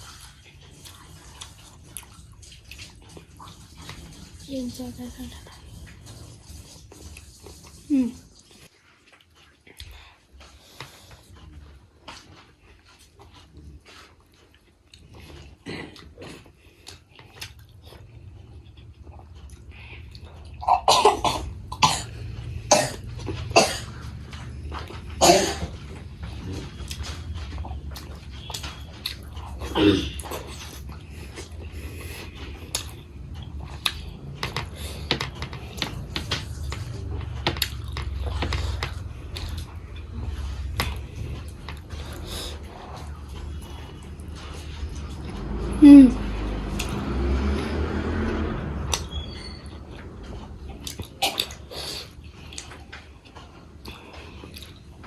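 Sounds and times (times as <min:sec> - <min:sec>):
person chewing food: 0:00.0 - 0:04.4, 0:05.4 - 0:55.0
low steady hum: 0:00.0 - 0:55.0.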